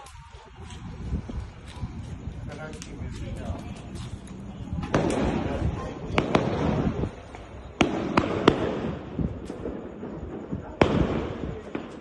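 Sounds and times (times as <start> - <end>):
rumbling crackle: 0.0 - 12.0
sharp bangs and pops: 4.8 - 12.0.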